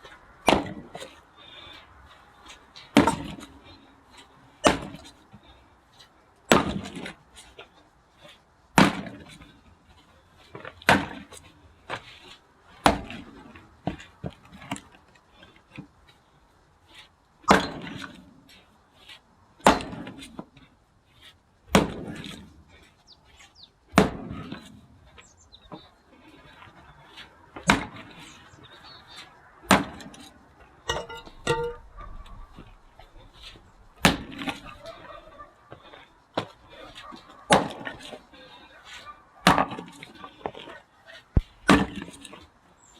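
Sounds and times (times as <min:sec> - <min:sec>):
axe splitting wood: 0:00.5 - 0:01.0, 0:03.0 - 0:03.5, 0:04.6 - 0:05.1, 0:06.5 - 0:07.1, 0:08.8 - 0:09.3, 0:10.8 - 0:11.4, 0:12.8 - 0:13.4, 0:17.5 - 0:18.2, 0:19.6 - 0:20.4, 0:21.7 - 0:22.4, 0:23.9 - 0:24.7, 0:27.6 - 0:28.2, 0:29.6 - 0:30.3, 0:34.0 - 0:34.9, 0:37.5 - 0:38.2, 0:39.4 - 0:40.0, 0:41.6 - 0:42.4.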